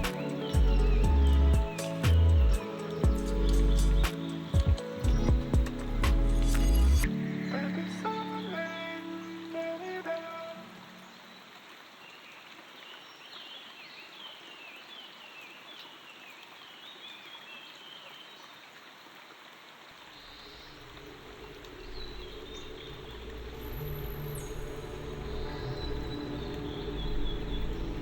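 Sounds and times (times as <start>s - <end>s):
soft low music notes: 0.0s - 9.8s, 20.6s - 28.0s
birds chirping: 0.0s - 15.9s, 20.2s - 28.0s
running water: 0.0s - 28.0s.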